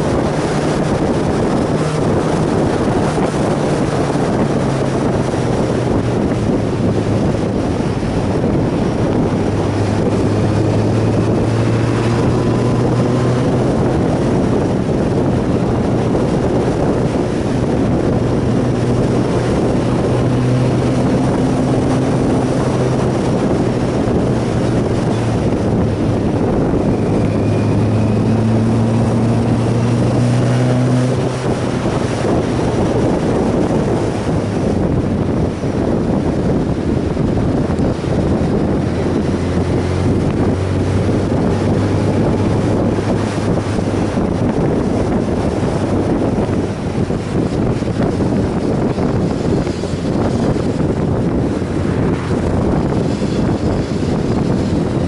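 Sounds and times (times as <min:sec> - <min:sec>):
motorcycle engine drone: 0:00.0 - 0:55.0
wind rush over microphone: 0:00.0 - 0:55.0.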